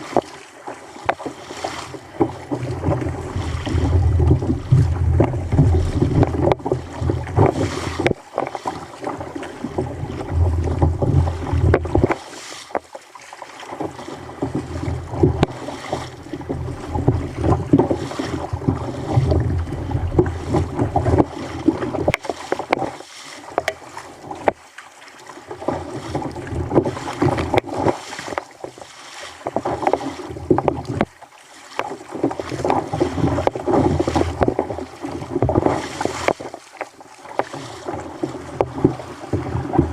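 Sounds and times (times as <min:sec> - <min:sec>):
water splashing against kayak hull: 0:00.0 - 0:39.9
wind buffeting microphone: 0:02.6 - 0:08.2, 0:09.5 - 0:12.1, 0:14.8 - 0:22.2.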